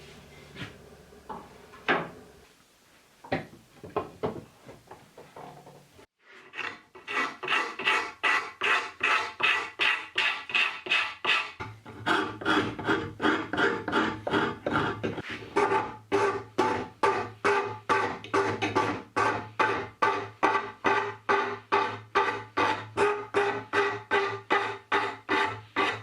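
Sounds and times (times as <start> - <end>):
rasp scraping wood: 6.3 - 26.0.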